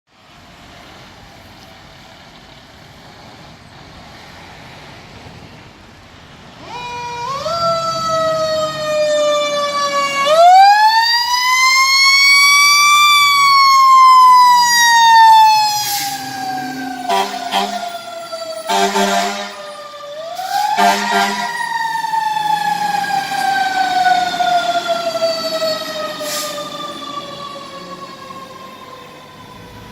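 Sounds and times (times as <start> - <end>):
fire truck siren wailing: 6.4 - 29.9.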